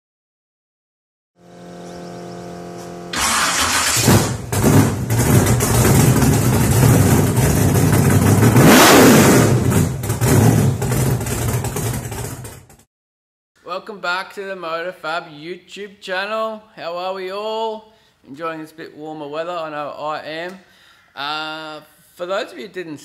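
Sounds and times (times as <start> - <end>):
car engine starting and running: 1.5 - 12.8.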